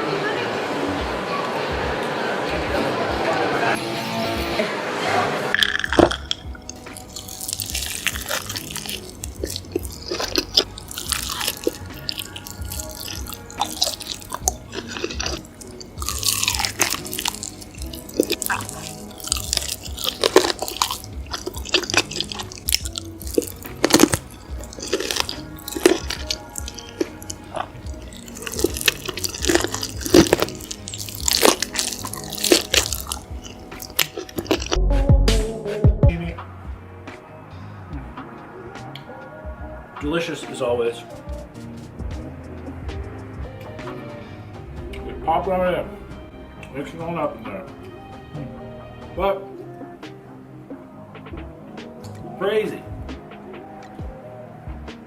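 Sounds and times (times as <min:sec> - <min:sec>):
background music with steady beat: 0:00.8 - 0:55.0
crunching and chewing food: 0:05.6 - 0:34.9.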